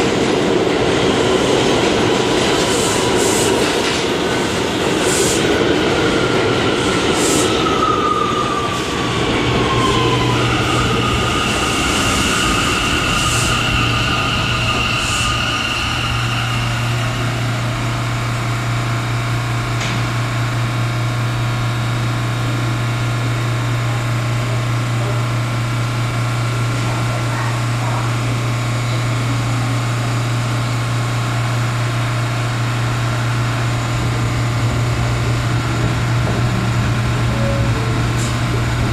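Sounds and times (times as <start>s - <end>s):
train equipment humming: 31.8s - 38.9s.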